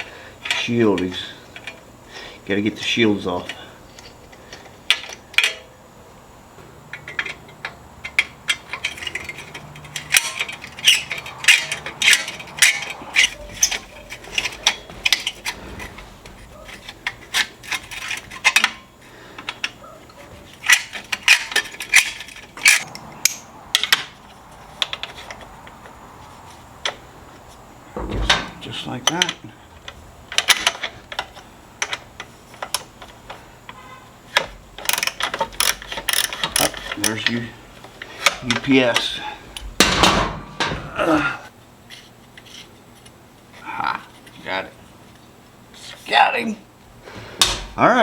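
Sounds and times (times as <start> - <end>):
metal tools clinking: 6.9 - 25.5, 34.4 - 40.8
socket ratchet clicking: 34.8 - 37.2.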